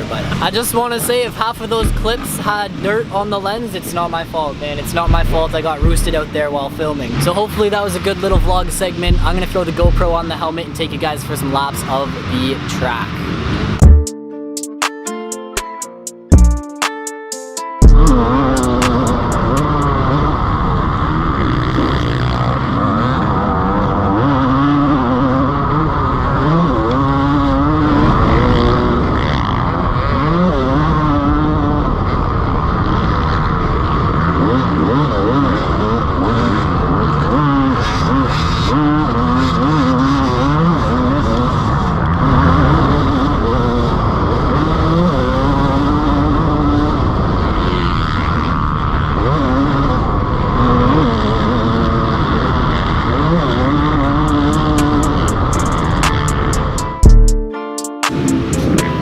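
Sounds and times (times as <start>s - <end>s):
dirt bike engine revving: 1.8s - 3.2s, 5.0s - 10.3s, 17.8s - 59.0s.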